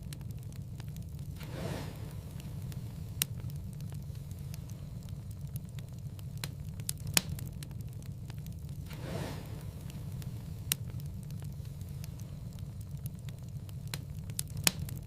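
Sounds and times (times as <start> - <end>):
sharp pops of fire: 0.0 - 15.0
whoosh of flame: 0.0 - 15.0
wood fire crackling: 0.0 - 15.0.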